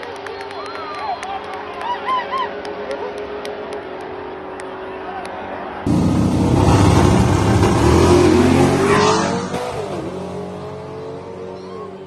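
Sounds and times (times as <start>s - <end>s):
car engines revving hard: 5.8s - 12.0s.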